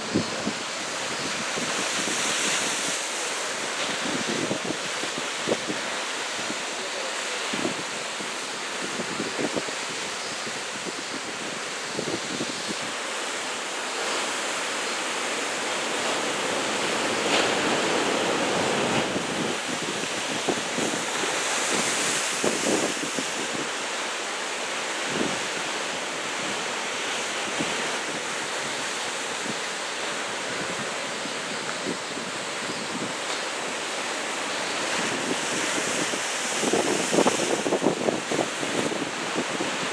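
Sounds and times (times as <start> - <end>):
ocean surf breaking: 0.0 - 10.0, 12.8 - 39.9
wind buffeting microphone: 34.9 - 39.9.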